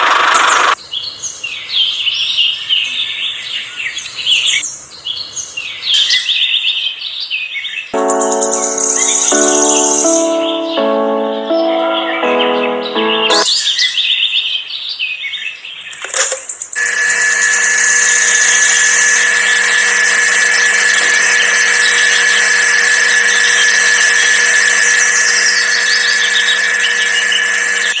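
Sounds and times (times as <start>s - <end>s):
small electric motor whining: 16.8s - 28.0s.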